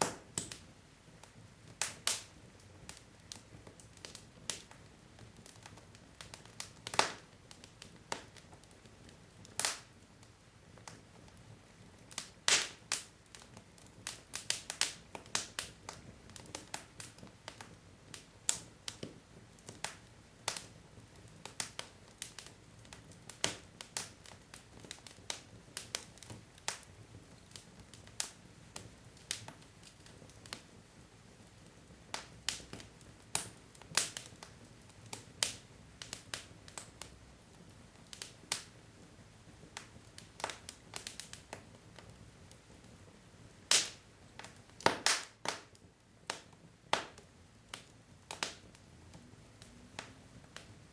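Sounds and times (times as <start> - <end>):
faint low hiss: 0.0 - 50.9
wood logs crackling in fireplace: 0.0 - 50.9.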